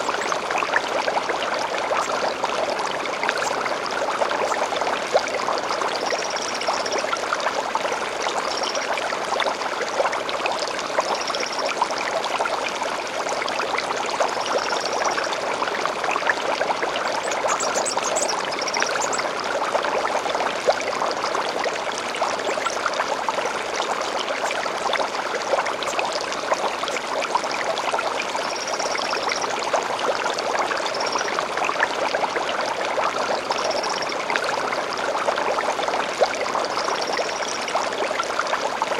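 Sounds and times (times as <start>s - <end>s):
stream flowing: 0.0s - 38.9s
bird chirps: 17.2s - 19.2s.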